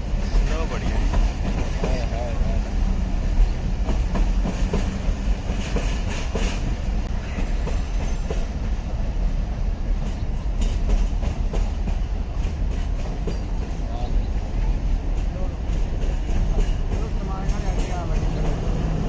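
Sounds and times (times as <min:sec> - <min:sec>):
train rumbling: 0:00.0 - 0:19.0
wheels clicking over rail joints: 0:09.8 - 0:14.1, 0:14.9 - 0:18.9.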